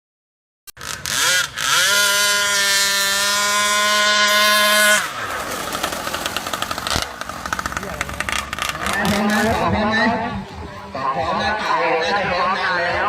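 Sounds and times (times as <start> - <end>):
small two-stroke engine revving: 0.8 - 9.6.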